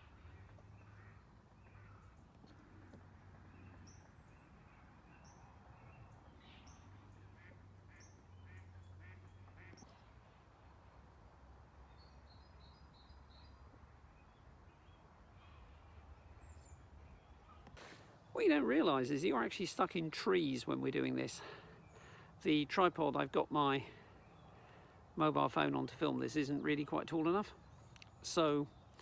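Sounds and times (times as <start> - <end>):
distant duck quacks: 7.2 - 9.8.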